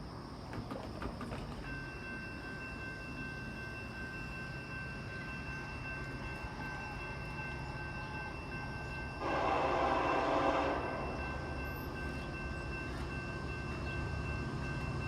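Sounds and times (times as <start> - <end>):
train rumble: 0.0 - 15.0
train horn blast: 9.2 - 11.6.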